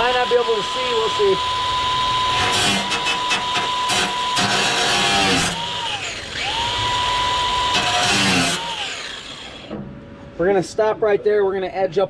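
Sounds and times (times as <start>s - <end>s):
power cutter whining: 0.0s - 9.8s
wheel grinding steel: 2.2s - 9.8s.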